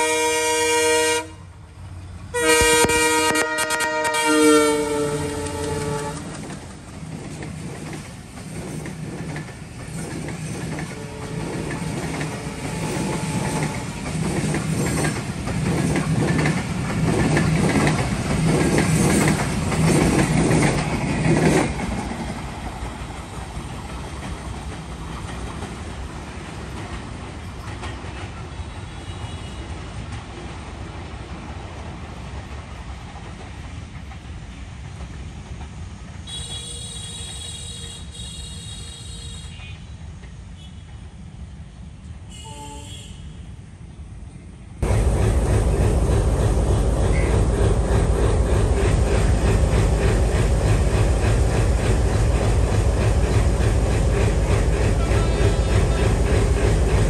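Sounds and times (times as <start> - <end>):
train horn blowing: 0.0 - 1.5, 2.3 - 6.4, 10.9 - 14.1, 28.6 - 29.7, 36.3 - 39.9, 42.3 - 43.5, 54.9 - 56.0
low train rumble: 0.0 - 57.0
train wheels clattering over rails: 2.5 - 41.0, 44.8 - 57.0.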